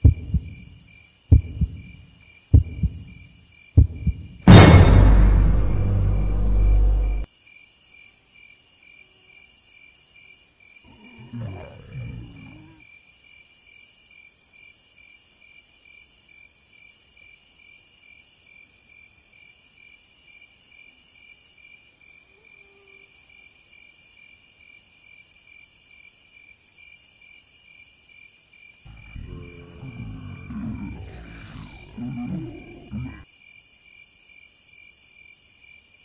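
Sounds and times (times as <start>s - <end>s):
loud low sound: 3.8s - 7.3s, 28.9s - 33.2s
low growl: 10.9s - 12.8s, 28.9s - 33.2s.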